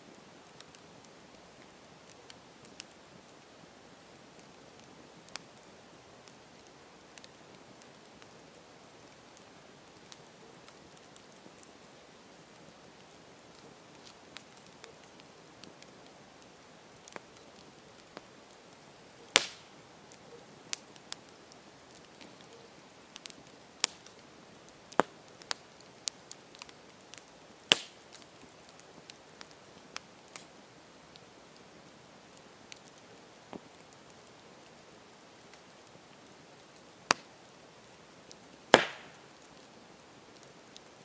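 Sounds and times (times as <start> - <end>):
campfire crackling and popping: 0.0 - 41.0
faint steady hiss: 0.0 - 41.0.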